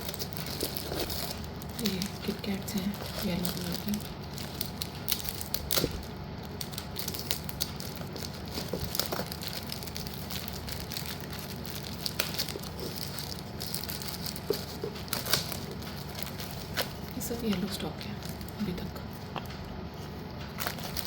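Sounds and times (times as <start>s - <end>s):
packaging crinkling: 0.0s - 21.0s.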